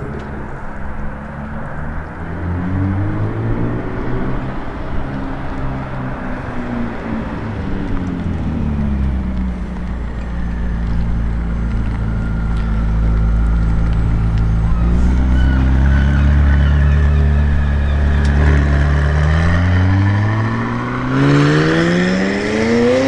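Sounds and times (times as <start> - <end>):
sports car engine droning: 0.0 - 23.0.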